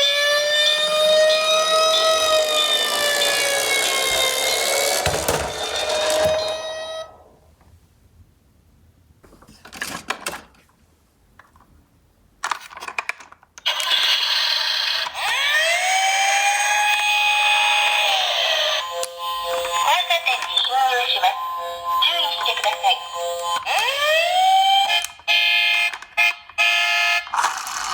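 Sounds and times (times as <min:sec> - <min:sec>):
toy electronic siren: 0:00.0 - 0:07.3, 0:13.7 - 0:27.9.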